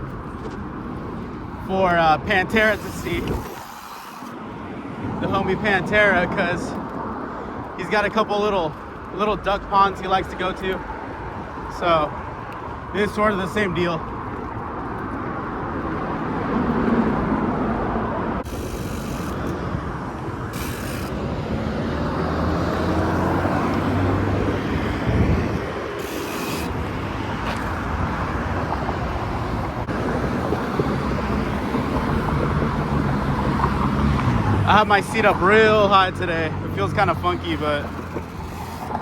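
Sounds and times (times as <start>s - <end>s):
passing cars humming: 0.0s - 39.0s
wind on microphone: 2.3s - 7.8s, 14.2s - 35.5s.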